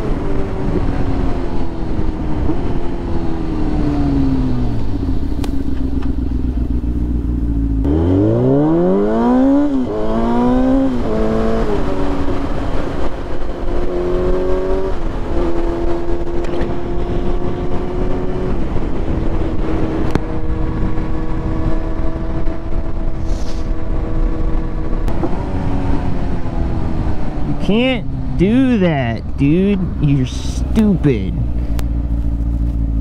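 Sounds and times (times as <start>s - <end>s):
motorcycle engine shifting up: 4.2s - 8.6s, 29.2s - 33.0s.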